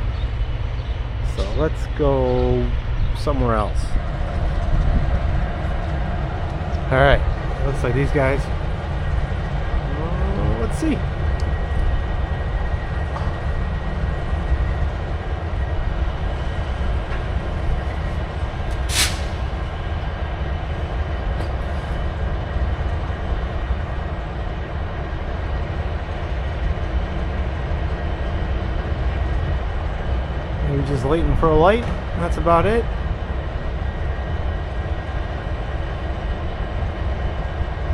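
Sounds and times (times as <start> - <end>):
train rumbling: 0.0 - 37.9.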